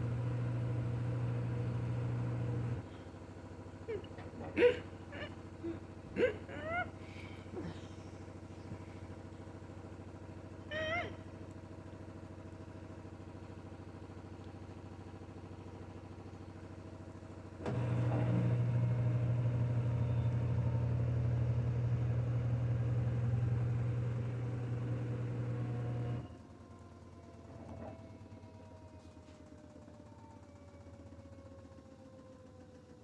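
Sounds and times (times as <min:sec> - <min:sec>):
washing machine humming: 0:00.0 - 0:26.3.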